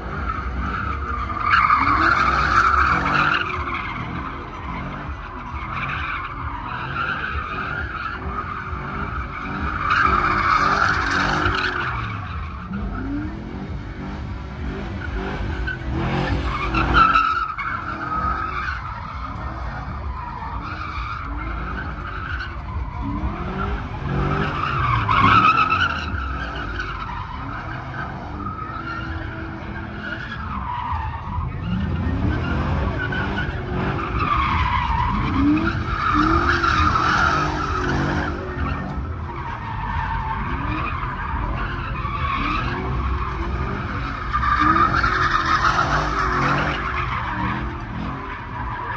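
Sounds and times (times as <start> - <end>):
tires screeching: 0.0 - 48.9
truck engine revving: 0.0 - 48.9.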